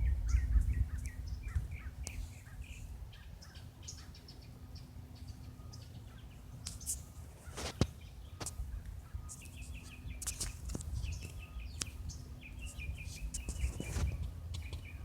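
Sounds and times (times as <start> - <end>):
small songbirds chirping: 0.0 - 15.0
steady low rumble: 0.0 - 15.0.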